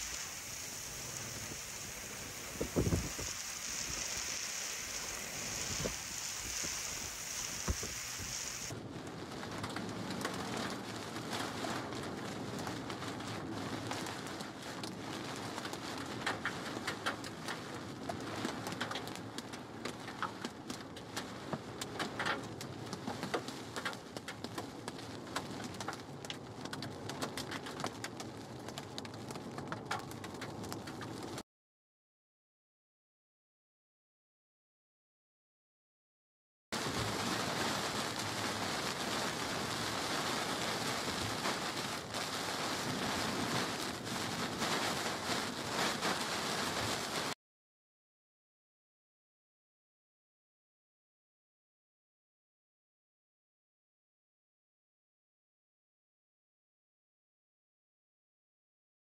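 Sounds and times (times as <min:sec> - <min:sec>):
heavy wind-driven rain: 0:00.0 - 0:31.4, 0:36.8 - 0:47.4
rain pelting car roof: 0:00.0 - 0:31.4, 0:36.8 - 0:47.3
wind buffeting microphone: 0:00.2 - 0:08.7.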